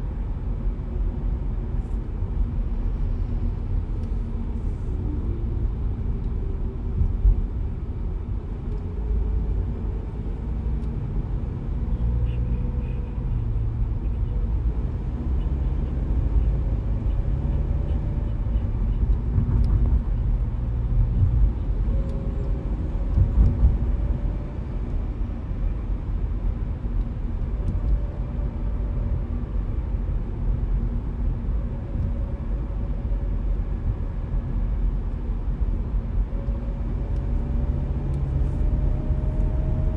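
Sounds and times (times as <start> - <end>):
car tyres and engine rumble: 0.0 - 39.9.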